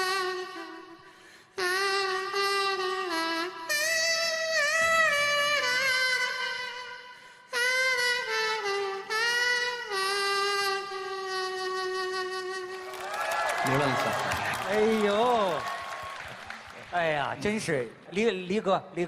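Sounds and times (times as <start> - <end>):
man playing melody through nose: 0.0 - 12.9.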